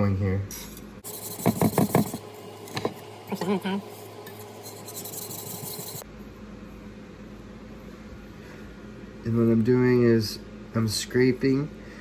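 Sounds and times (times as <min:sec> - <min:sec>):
knife rasping on whetstone: 0:01.0 - 0:02.3, 0:04.0 - 0:06.0.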